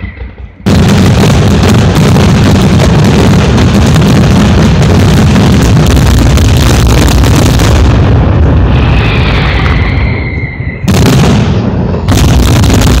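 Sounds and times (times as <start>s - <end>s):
firework whistling: 0.0s - 1.3s, 8.5s - 13.0s
fireworks banging and crackling: 0.0s - 13.0s.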